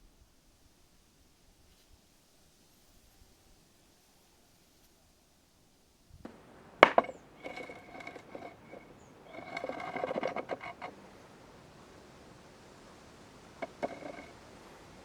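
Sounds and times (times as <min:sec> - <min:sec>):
scraping with faint ring: 0:06.3 - 0:15.0.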